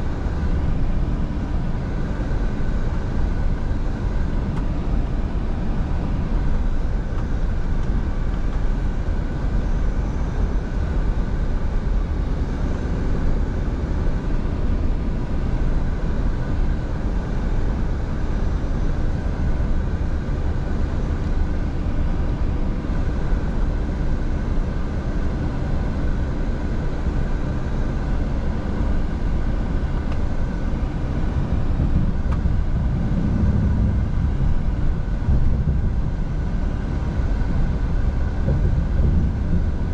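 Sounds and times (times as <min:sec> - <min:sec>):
diesel truck engine running: 0:27.1 - 0:39.9
road noise: 0:27.8 - 0:39.9.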